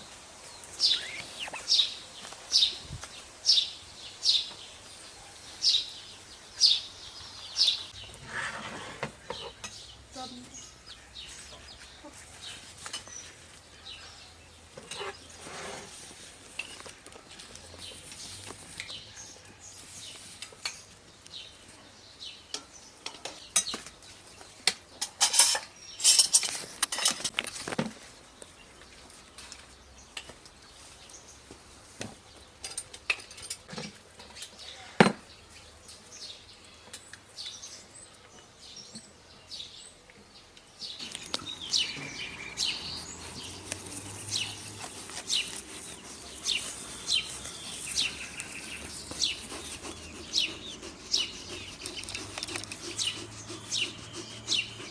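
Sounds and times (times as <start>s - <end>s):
birds chirping: 0.0s - 27.3s, 28.0s - 54.9s
cutlery clinking on dishes: 25.0s - 27.3s.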